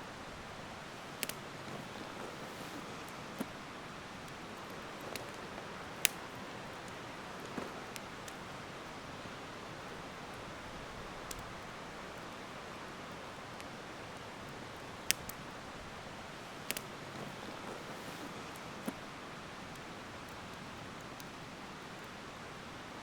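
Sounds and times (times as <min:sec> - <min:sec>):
campfire crackling: 0:00.0 - 0:23.0
sharp fire pops: 0:00.6 - 0:08.6, 0:13.4 - 0:21.4.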